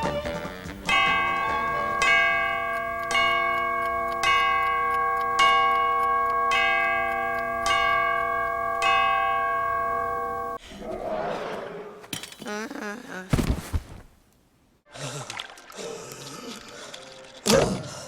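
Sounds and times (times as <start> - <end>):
large bell chiming: 0.9 - 10.6.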